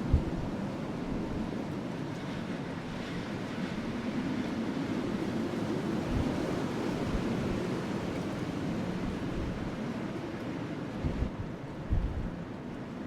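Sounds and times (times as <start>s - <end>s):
wind gusts buffeting microphone: 0.0s - 13.0s
wind blowing: 11.0s - 12.4s.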